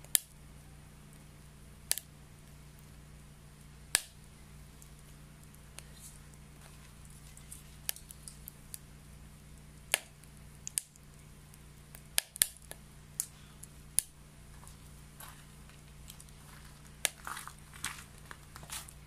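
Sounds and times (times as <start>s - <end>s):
wood crackling in a stove: 0.0s - 19.0s.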